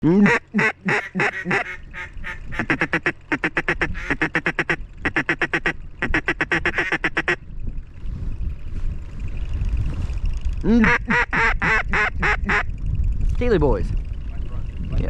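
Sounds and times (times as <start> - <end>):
duck quacking: 0.0 - 7.4, 10.8 - 12.7
low rumble: 0.0 - 15.0.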